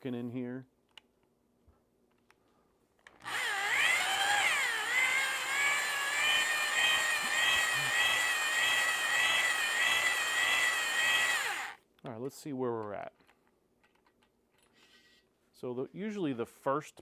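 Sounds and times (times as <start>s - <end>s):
electric drill whining: 3.2s - 11.8s.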